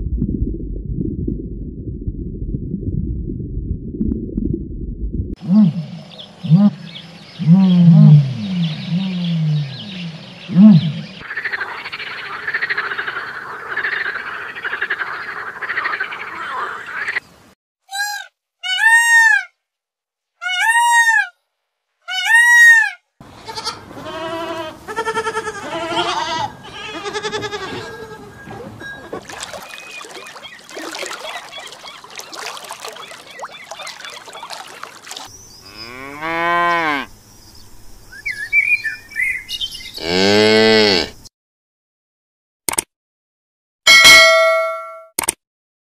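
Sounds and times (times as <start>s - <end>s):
goat bleating: 23.4s - 29.2s
water buffalo lowing: 26.7s - 35.0s.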